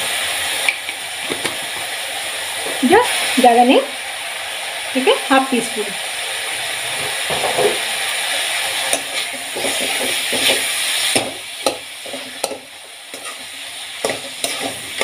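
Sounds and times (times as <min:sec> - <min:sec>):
masala sizzling in oil: 0:00.0 - 0:15.0
spatula scraping and tapping pan: 0:08.8 - 0:15.0.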